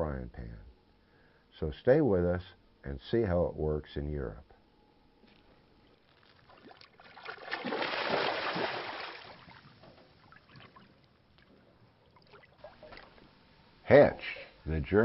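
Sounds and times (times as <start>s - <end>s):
rushing sloshing water: 6.5s - 11.0s.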